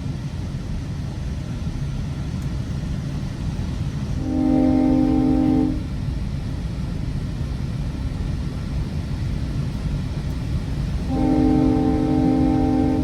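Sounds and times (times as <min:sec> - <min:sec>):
train rumbling along track: 0:00.0 - 0:13.0
multi-tone train horn blast: 0:04.2 - 0:06.0, 0:11.0 - 0:13.0.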